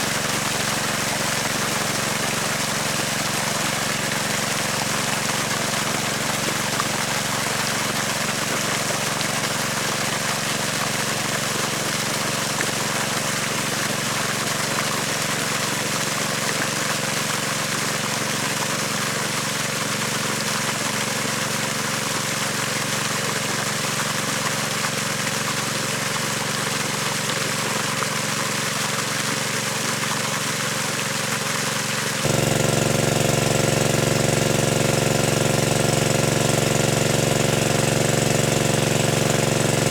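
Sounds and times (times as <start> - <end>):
engine running: 32.2 - 39.9.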